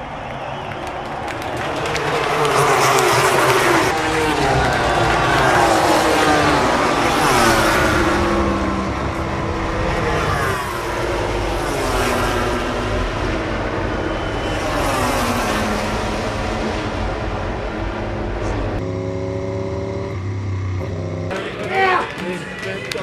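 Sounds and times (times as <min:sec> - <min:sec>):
racing motorcycles passing by: 0:00.4 - 0:23.0.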